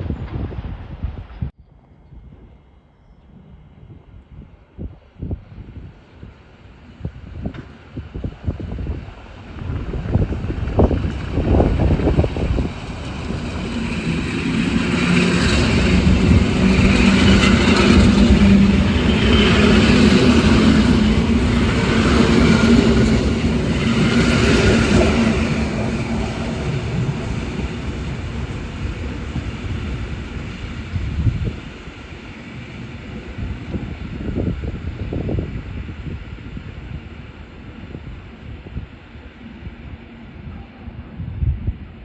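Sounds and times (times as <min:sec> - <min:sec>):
train wheels on rails: 0:06.3 - 0:40.4
traction motors humming: 0:10.8 - 0:31.6.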